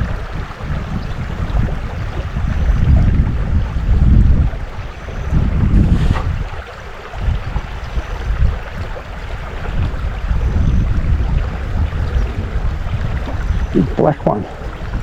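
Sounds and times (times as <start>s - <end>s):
wind buffeting microphone: 0.0s - 15.0s
river flowing: 4.6s - 10.3s.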